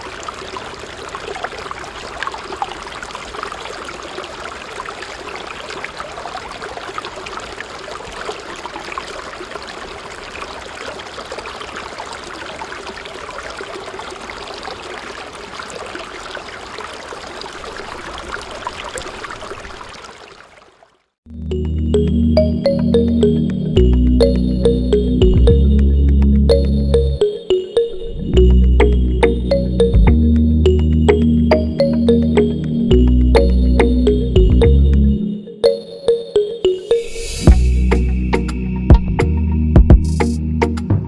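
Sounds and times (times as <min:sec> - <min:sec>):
water trickling and splashing: 0:00.0 - 0:21.2.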